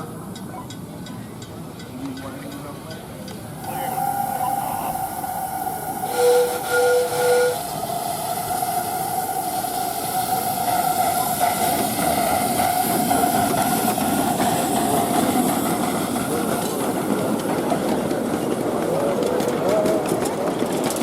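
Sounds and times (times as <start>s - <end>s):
train whistle toots: 3.6s - 13.2s.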